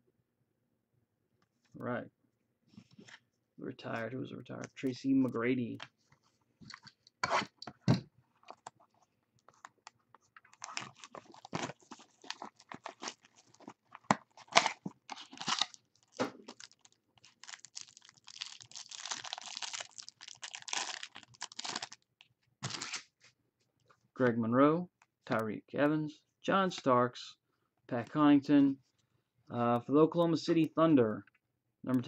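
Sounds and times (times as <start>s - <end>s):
card pack wrapper crinkling: 8.4s - 23.1s.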